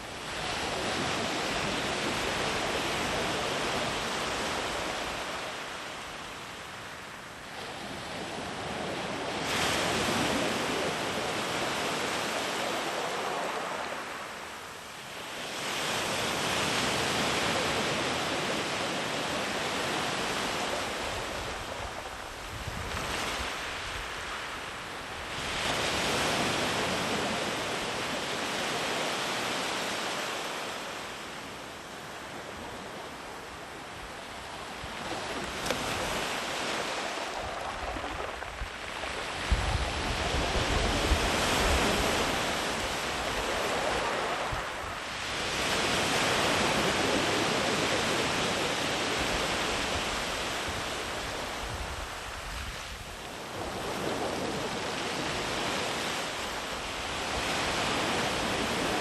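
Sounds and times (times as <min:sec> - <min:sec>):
ocean waves breaking on beach: 0:00.0 - 0:59.0
wind buffeting microphone: 0:34.9 - 0:48.1.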